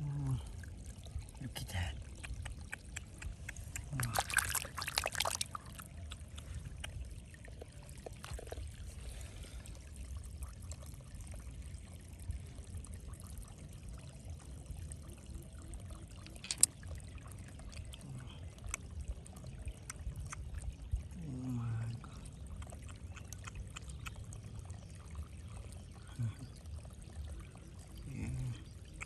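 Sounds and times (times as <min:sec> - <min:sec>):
water splashing and trickling: 0:00.0 - 0:29.0
small clicks: 0:16.2 - 0:16.8.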